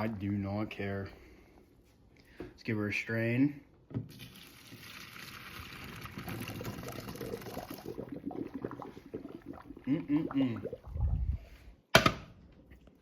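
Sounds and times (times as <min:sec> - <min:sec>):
water pouring into a strainer: 0:04.2 - 0:09.5.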